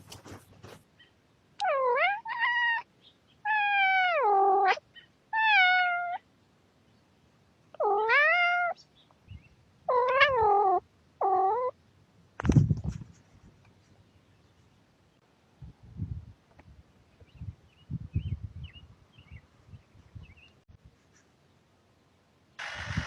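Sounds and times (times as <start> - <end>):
cat meowing: 1.6 - 2.9, 3.5 - 4.8, 5.4 - 6.2, 7.8 - 8.8, 9.9 - 11.7.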